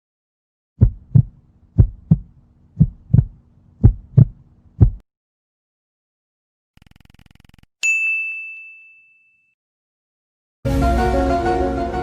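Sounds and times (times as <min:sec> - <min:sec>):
heartbeat thumps: 0:00.8 - 0:05.0.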